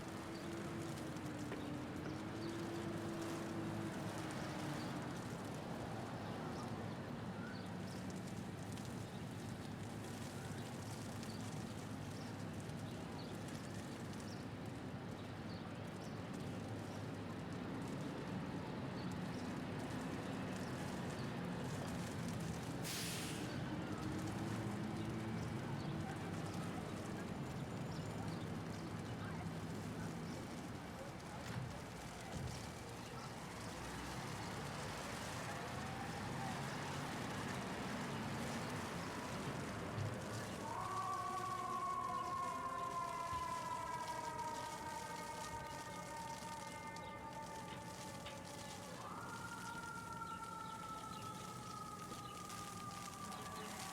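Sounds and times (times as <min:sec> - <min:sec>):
vehicle engines passing: 0:00.0 - 0:07.3, 0:18.3 - 0:40.8
hailstones ticking: 0:00.0 - 0:15.1, 0:15.7 - 0:53.9
low rumble of city traffic: 0:00.0 - 0:53.9.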